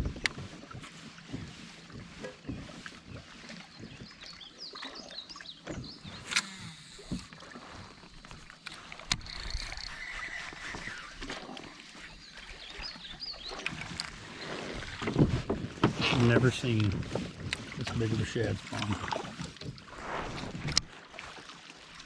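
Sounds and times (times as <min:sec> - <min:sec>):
faint water noise: 0:00.0 - 0:22.0
fishing gear knocks and clicks: 0:05.6 - 0:11.6, 0:13.5 - 0:14.2.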